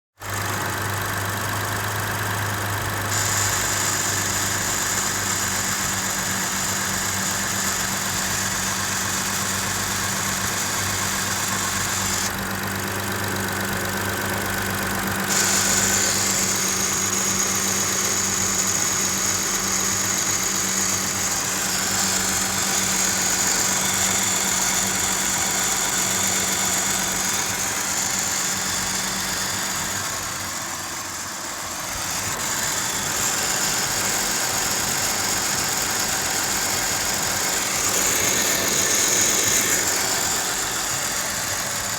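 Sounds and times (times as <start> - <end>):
car engine idling: 0.2 - 41.9.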